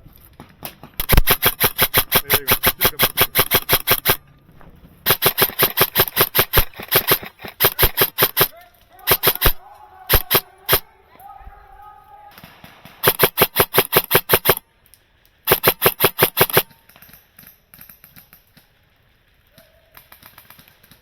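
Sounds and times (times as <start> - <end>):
airsoft gun rapid firing: 1.0 - 4.2, 5.1 - 10.9, 12.4 - 14.6, 15.5 - 16.8.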